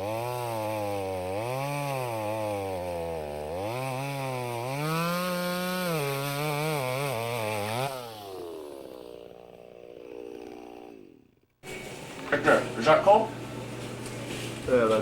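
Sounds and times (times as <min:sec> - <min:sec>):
chainsaw engine revving: 0:00.0 - 0:12.9.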